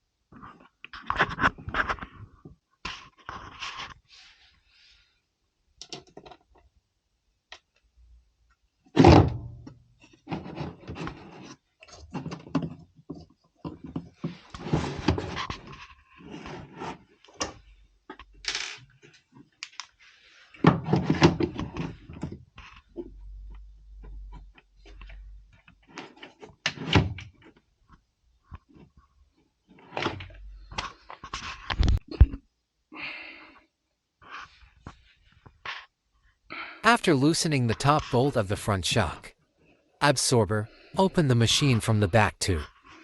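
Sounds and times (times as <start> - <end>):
rubbing and scraping: 10.1 - 12.3, 13.8 - 17.2.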